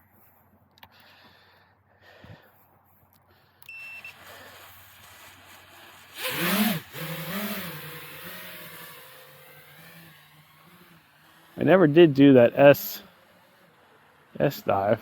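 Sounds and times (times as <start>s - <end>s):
drone motor whine: 3.6s - 15.0s
short beep: 3.7s - 4.2s.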